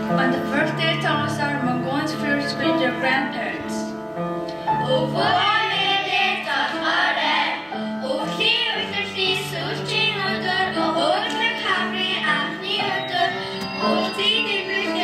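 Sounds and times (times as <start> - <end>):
instrumental accompaniment: 0.0 - 15.0
students singing: 4.8 - 15.0.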